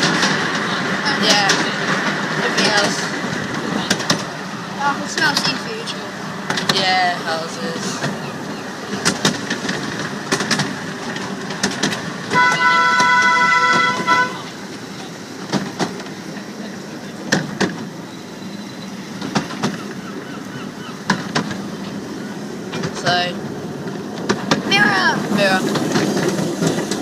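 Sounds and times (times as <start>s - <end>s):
moving train rumble: 0.0s - 27.0s
train horn chord: 12.3s - 14.6s.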